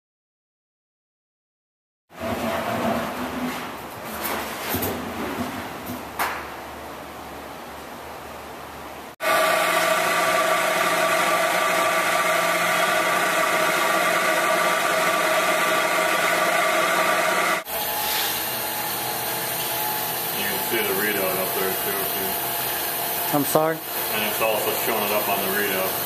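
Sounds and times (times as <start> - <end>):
milling machine whine: 9.2 - 26.0.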